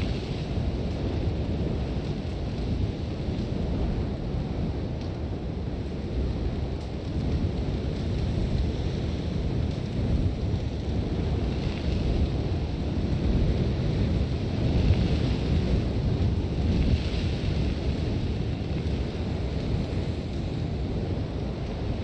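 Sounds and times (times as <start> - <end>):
strong wind gusts rumbling: 0.0 - 22.0.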